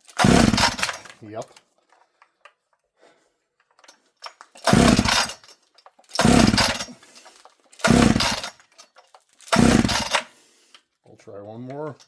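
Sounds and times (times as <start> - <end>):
chainsaw engine cranking: 0.0 - 1.6, 3.7 - 10.5.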